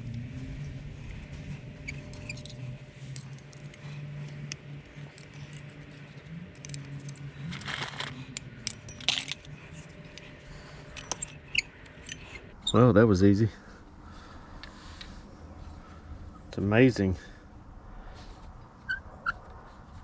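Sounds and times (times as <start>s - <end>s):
metallic clatter: 0.6s - 12.5s
wrench clinking on metal parts: 0.6s - 12.5s.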